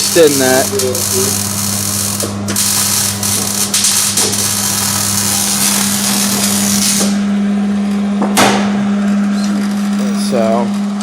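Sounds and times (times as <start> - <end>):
power tool running: 0.0 - 8.3
electrical hum: 0.0 - 11.0.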